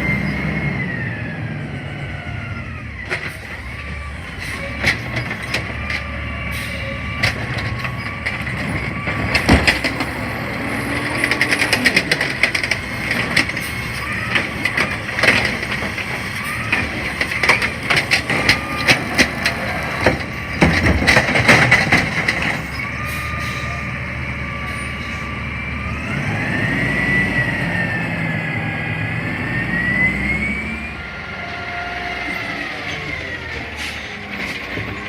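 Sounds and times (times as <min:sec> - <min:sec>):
garbage truck engine rumble: 0:00.0 - 0:35.0
metal clanks and knocks: 0:07.1 - 0:22.8.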